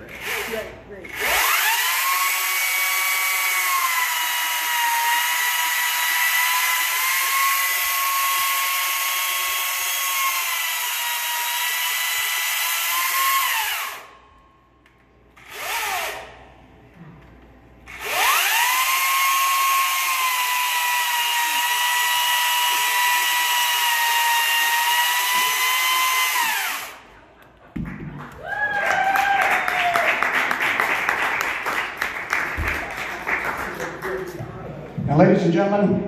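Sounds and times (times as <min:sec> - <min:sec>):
chainsaw whining: 0:00.0 - 0:14.1, 0:15.4 - 0:16.3, 0:17.9 - 0:27.2.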